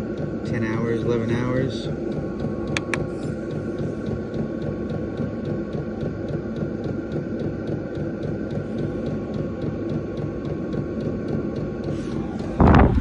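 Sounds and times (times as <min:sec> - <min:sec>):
heater fan and burner hum: 0:00.0 - 0:13.0
sharp clicks: 0:02.7 - 0:03.1
fixed whine: 0:12.0 - 0:13.0.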